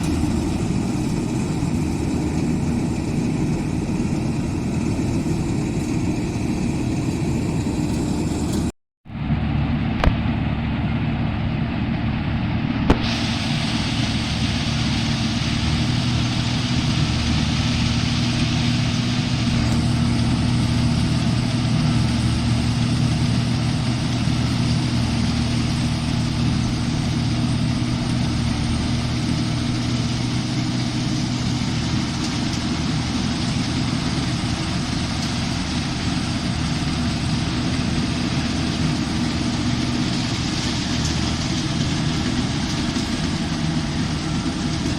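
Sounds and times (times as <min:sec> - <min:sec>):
combine harvester engine drone: 0:00.0 - 0:44.9.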